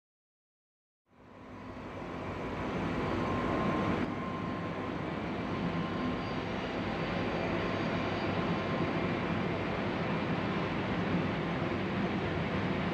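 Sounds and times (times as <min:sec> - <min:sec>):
electric locomotive running: 0:01.3 - 0:12.9.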